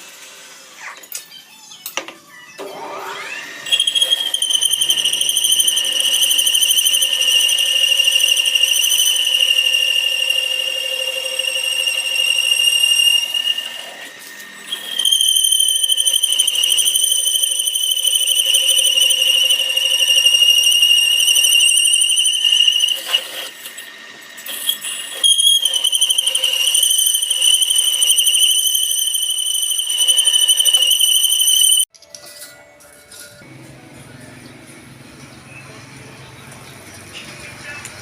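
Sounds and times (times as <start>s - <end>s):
lathe tool squealing on steel: 2.6s - 31.9s.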